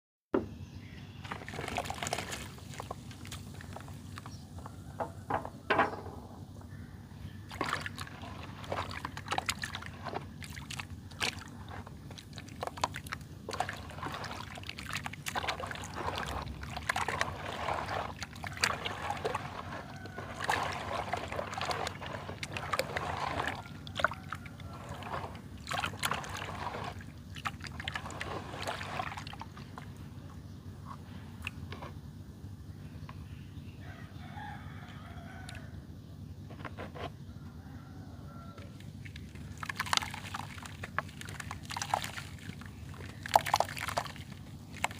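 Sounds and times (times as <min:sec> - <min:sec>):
low steady hum: 0:00.4 - 0:44.9
wet mud squelching and crackling: 0:01.2 - 0:04.3, 0:07.4 - 0:30.2, 0:38.8 - 0:44.9.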